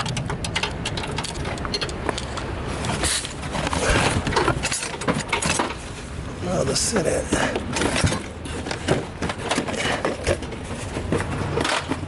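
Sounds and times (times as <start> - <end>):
wrench clinking against bolt: 0.0 - 2.3.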